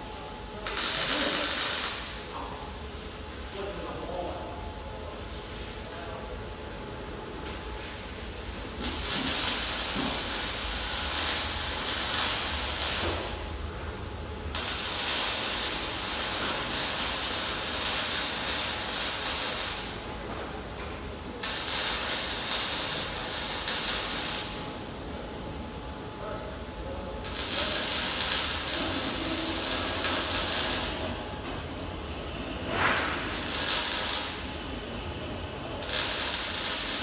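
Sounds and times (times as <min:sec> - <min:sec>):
workshop tool hissing: 0:00.7 - 0:02.1, 0:08.8 - 0:13.4, 0:27.1 - 0:31.2, 0:32.1 - 0:34.9, 0:35.5 - 0:37.0.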